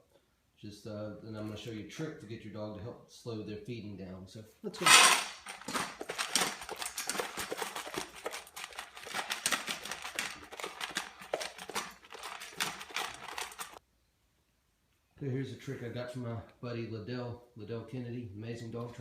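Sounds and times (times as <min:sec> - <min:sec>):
dog eating crunchy food: 0:04.8 - 0:13.8.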